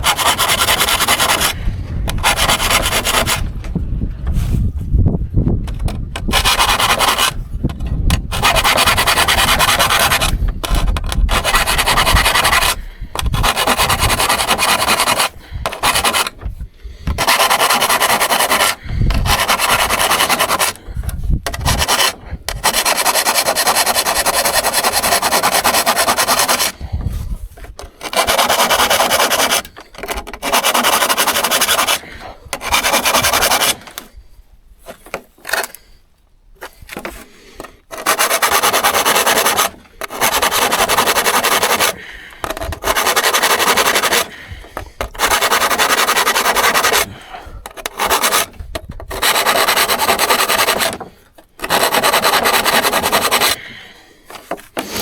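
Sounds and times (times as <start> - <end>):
hand saw scraping: 0.0 - 36.0, 36.6 - 55.0.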